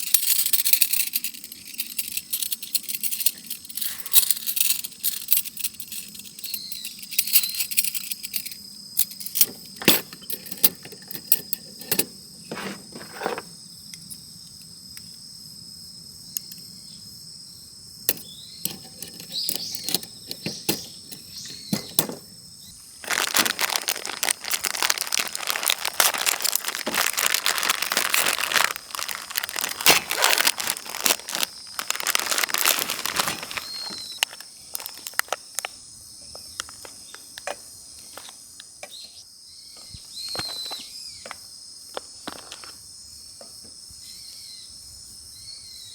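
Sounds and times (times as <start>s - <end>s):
crackling and rustling: 0.0s - 13.5s, 18.1s - 22.3s, 23.0s - 35.7s
insects chirring: 0.0s - 45.9s
clicks and knocks: 18.1s - 22.3s.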